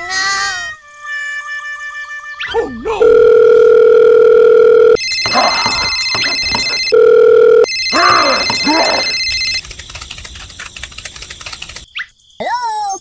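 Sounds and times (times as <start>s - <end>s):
dial tone hum: 3.0s - 9.6s
shrill electronic phone ringing: 3.0s - 9.7s
fast faint clicking: 9.2s - 11.9s.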